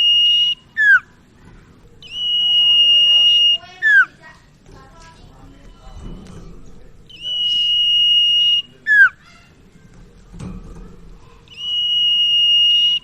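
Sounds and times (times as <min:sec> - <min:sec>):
bird singing high whistles: 0:00.0 - 0:01.1, 0:02.0 - 0:04.2, 0:07.1 - 0:09.2, 0:11.5 - 0:13.0.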